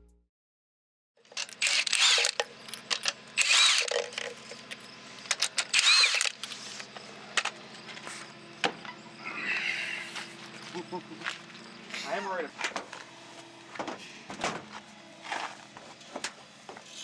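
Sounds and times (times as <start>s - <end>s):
metal clicks and clanks of tools: 1.2s - 7.6s
cordless impact wrench: 1.3s - 7.5s.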